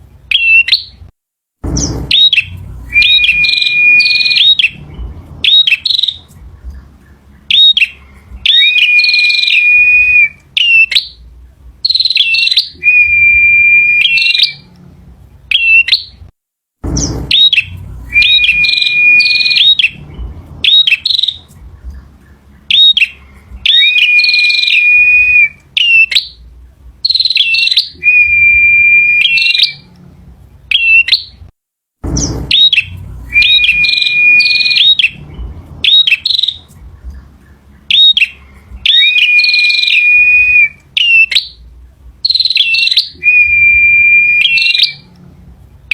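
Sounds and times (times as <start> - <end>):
bird singing chips and whistle: 0.3 - 1.0, 1.7 - 11.2, 11.8 - 14.7, 15.5 - 16.2, 16.9 - 26.4, 27.0 - 29.9, 30.7 - 31.4, 32.1 - 45.1
low thump: 1.6 - 7.0, 16.8 - 23.7, 32.0 - 37.7.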